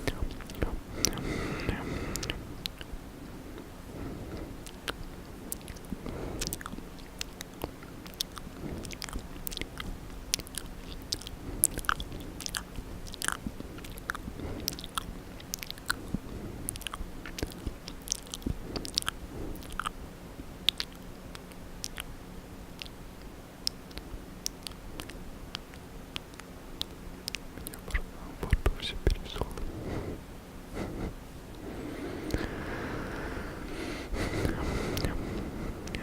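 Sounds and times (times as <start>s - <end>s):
wet mouth clicks and lip smacks: 2.1s - 2.9s, 4.6s - 16.1s, 16.7s - 19.9s, 20.7s - 22.1s, 22.8s - 23.0s, 23.6s - 29.6s.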